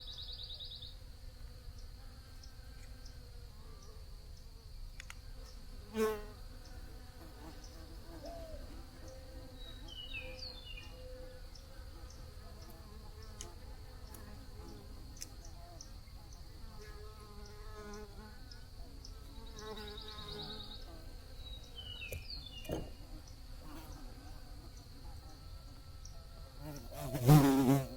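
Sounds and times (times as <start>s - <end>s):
sharp click: 5.0s - 5.2s
high-pitched insect trill: 14.3s - 27.9s
bees buzzing: 26.6s - 27.9s.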